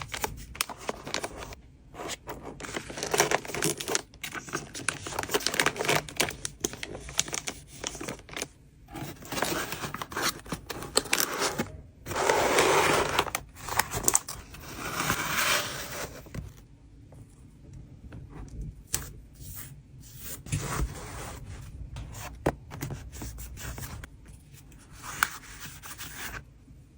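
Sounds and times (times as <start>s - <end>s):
packaging rustling and crinkling: 0.0s - 16.6s.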